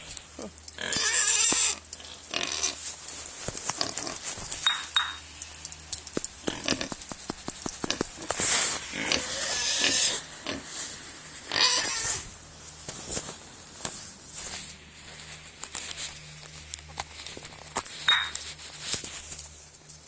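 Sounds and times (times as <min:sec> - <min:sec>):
pigs squealing: 0:00.4 - 0:02.9, 0:06.4 - 0:07.0, 0:07.8 - 0:12.4
sharp clicks: 0:03.0 - 0:08.9.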